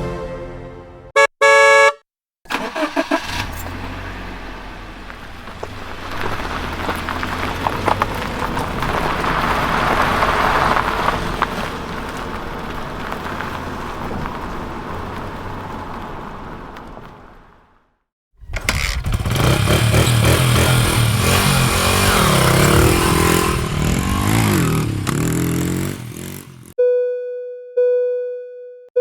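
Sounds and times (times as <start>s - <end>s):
vehicle engine starting and running: 2.5s - 17.2s, 18.4s - 26.8s.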